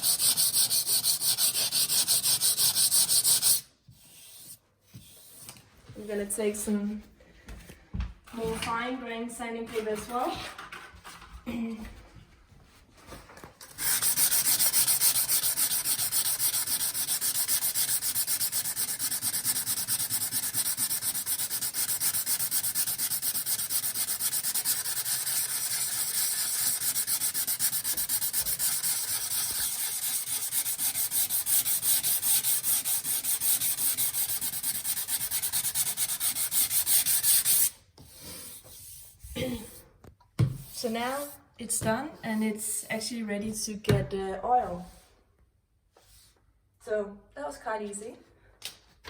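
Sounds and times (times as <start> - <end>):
sandpaper rubbing by hand: 0.0 - 5.4, 13.7 - 39.2.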